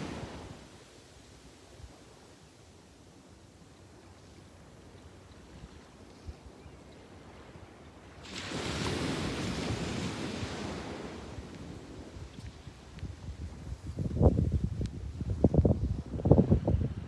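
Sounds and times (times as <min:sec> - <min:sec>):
sea waves breaking on shore: 0:00.0 - 0:01.0, 0:07.2 - 0:12.9.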